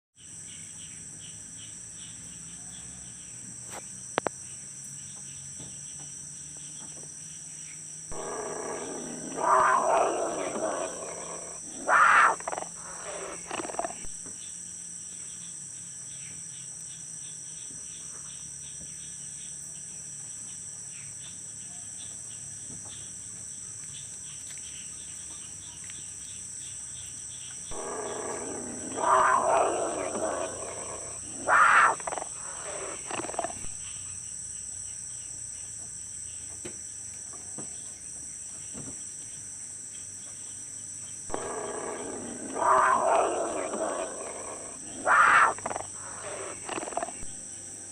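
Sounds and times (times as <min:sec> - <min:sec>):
high insect chorus: 0:00.2 - 0:47.9
goat growl-like calls: 0:08.1 - 0:14.2, 0:27.7 - 0:33.8, 0:41.3 - 0:47.4.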